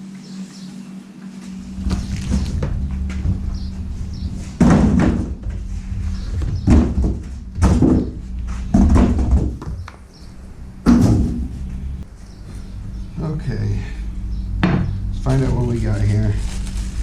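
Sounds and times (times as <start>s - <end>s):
steady low hum: 0.0s - 17.0s
thumps and scrapes: 1.4s - 10.0s.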